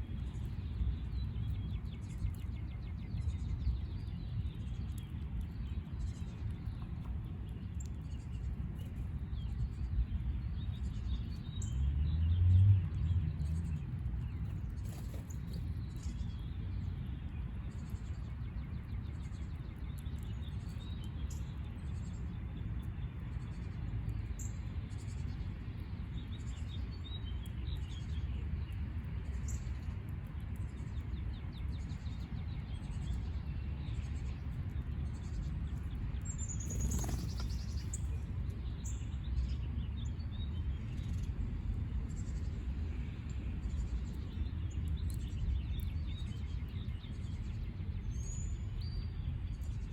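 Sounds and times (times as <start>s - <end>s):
small birds chirping: 13.5s - 22.2s, 24.1s - 49.9s
low background rumble: 25.0s - 49.8s.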